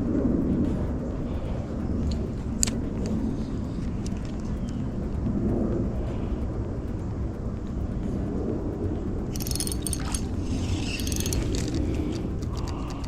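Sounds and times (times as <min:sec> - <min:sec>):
low rumble: 0:00.0 - 0:13.0
fishing reel clicking: 0:01.3 - 0:05.2, 0:09.3 - 0:13.0.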